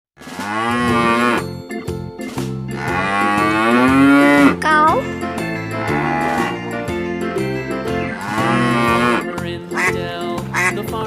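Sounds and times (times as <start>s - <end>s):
cow mooing: 0.3s - 1.5s, 2.7s - 4.6s, 5.6s - 6.8s, 8.1s - 9.3s
children's music backing track: 0.6s - 11.0s.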